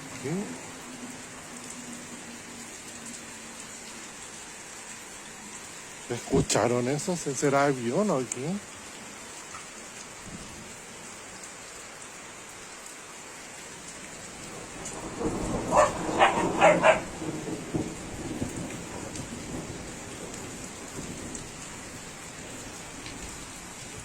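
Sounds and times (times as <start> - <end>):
heavy rain falling: 0.0 - 24.0
thunder rumbling: 14.4 - 24.0
dog barking: 15.7 - 17.1.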